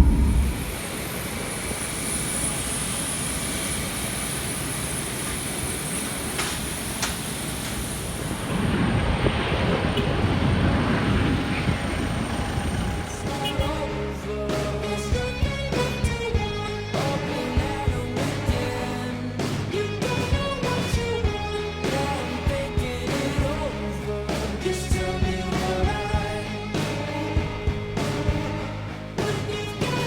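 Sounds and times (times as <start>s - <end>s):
jet engines roaring: 0.0s - 13.7s
faint high engine whine: 0.0s - 13.8s.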